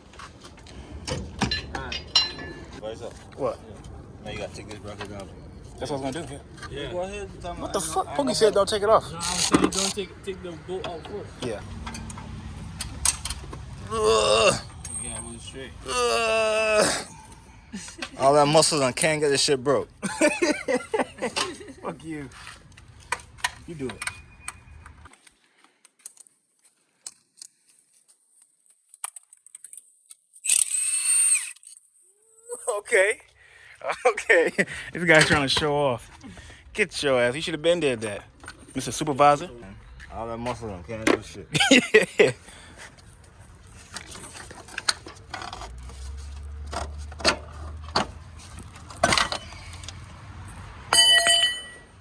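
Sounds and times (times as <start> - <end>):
hand tools tapping on metal: 1.1 - 2.7, 11.8 - 13.6, 50.9 - 51.9
metal tools clicking and clinking: 1.4 - 2.8, 9.2 - 10.1, 50.9 - 51.9.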